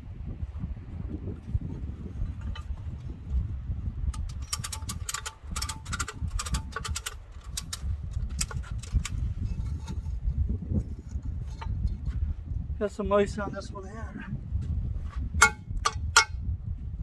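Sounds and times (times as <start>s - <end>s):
wind rumble on microphone: 0.0s - 17.0s
sharp metallic clicks: 4.1s - 9.2s.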